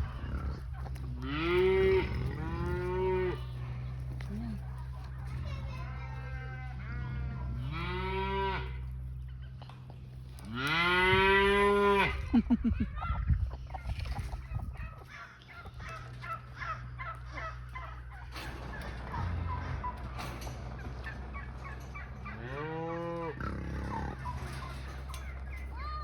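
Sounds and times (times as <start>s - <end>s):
cow mooing: 0.0s - 3.8s, 6.4s - 8.9s, 10.4s - 12.2s, 22.3s - 25.0s
poultry calling: 0.0s - 9.7s, 13.0s - 26.0s
low hum: 0.0s - 25.8s.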